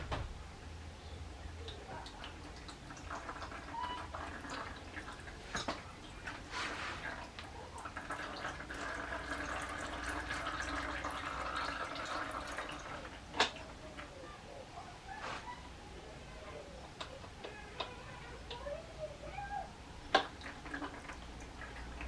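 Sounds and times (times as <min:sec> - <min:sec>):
oil trickling and dripping: 0:01.5 - 0:14.3, 0:20.1 - 0:22.0.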